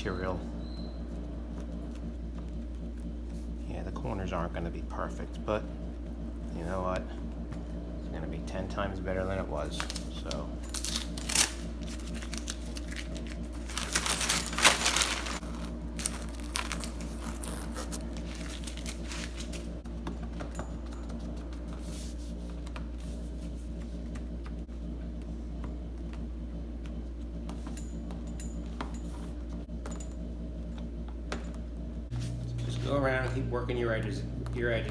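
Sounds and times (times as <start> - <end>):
steady low hum: 0.0 - 34.9
vinyl sheet crinkling and rustling: 9.6 - 19.8.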